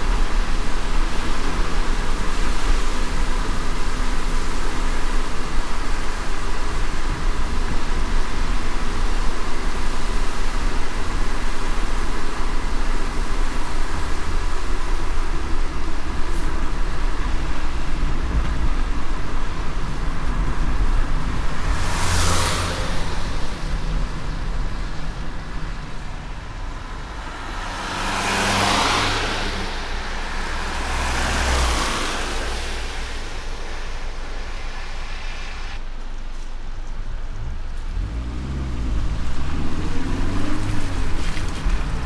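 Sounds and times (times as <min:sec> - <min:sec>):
car driving on wet road: 0:00.0 - 0:42.0
hiss of rain and tyres: 0:00.0 - 0:42.0
passing traffic rushing: 0:00.0 - 0:42.0.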